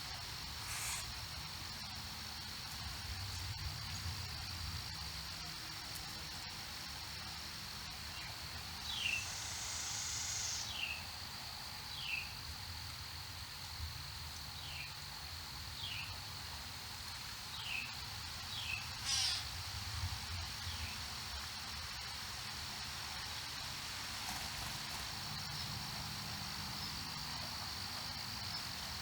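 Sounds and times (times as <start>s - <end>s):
brief hiss: 0.6s - 1.2s, 9.0s - 10.8s, 19.0s - 19.5s
high-pitched insect drone: 8.7s - 11.1s, 18.6s - 19.5s.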